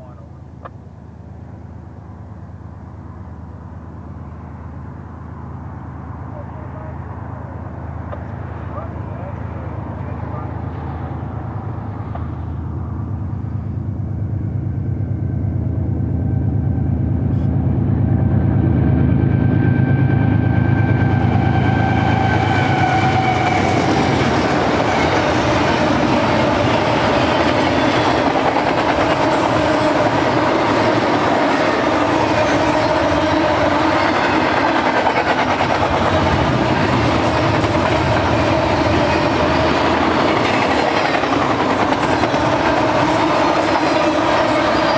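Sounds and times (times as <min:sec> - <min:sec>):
diesel locomotive drone: 0:00.0 - 0:44.9
train wheels clattering on rails: 0:22.1 - 0:44.9.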